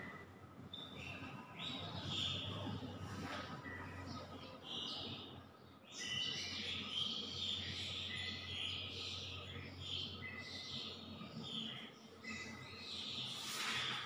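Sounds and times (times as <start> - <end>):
birds chirping: 3.6 - 14.0.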